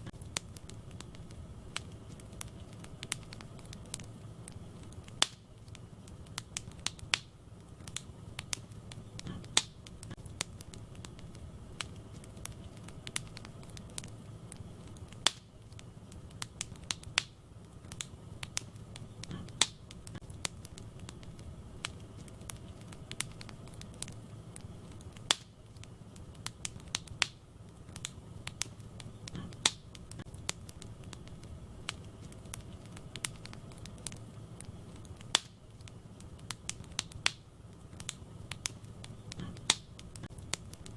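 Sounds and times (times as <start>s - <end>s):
logs popping and crackling: 0.0s - 40.9s
low rumble of flames: 0.0s - 40.9s.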